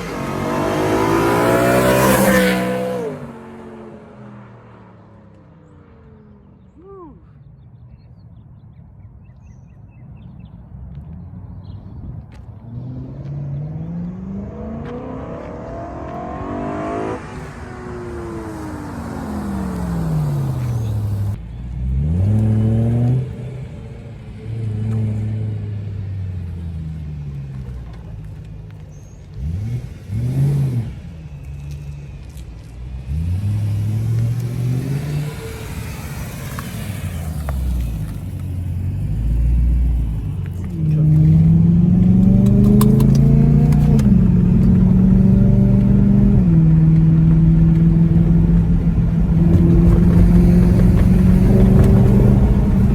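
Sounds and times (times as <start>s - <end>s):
car engine revving: 0.0s - 5.0s, 12.6s - 27.7s, 29.3s - 31.1s, 32.2s - 52.9s.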